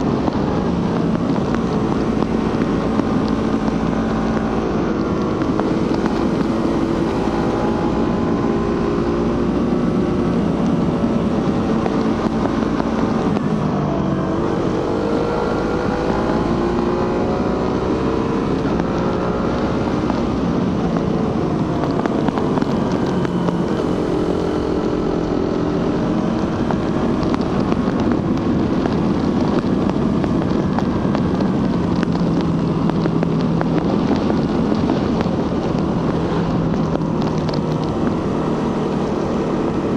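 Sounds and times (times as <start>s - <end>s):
motorcycle engine accelerating: 0.0s - 39.9s
wind rush on microphone: 0.0s - 39.9s.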